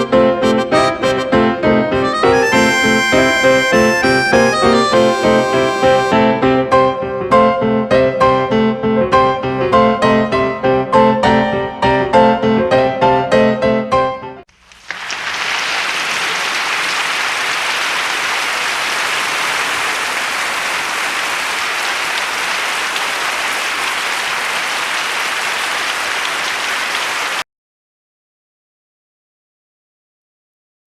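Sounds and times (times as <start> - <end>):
crowd clapping: 2.1 - 6.1, 14.6 - 27.4.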